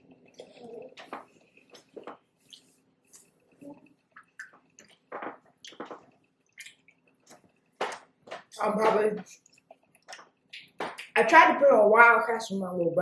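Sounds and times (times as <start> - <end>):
person chewing: 0.2 - 8.5, 9.3 - 11.1.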